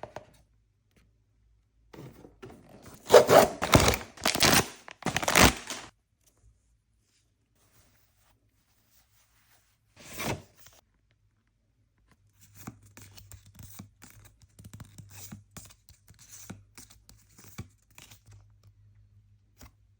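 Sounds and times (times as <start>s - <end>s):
packaging tearing: 3.0s - 5.9s
wrapping crinkling and rustling: 3.0s - 5.9s.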